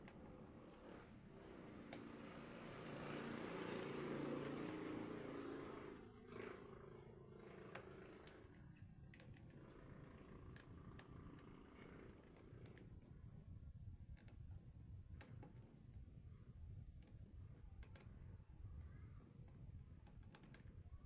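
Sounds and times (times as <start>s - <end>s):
small plastic clicks: 7.7s - 13.2s, 14.0s - 15.9s, 16.9s - 18.5s, 19.1s - 21.0s.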